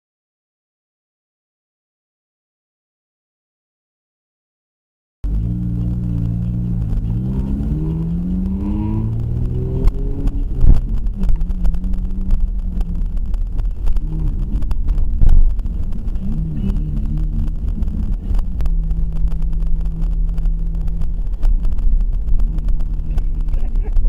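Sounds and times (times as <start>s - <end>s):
engine drone: 5.2s - 24.0s
road rumble: 5.2s - 24.0s.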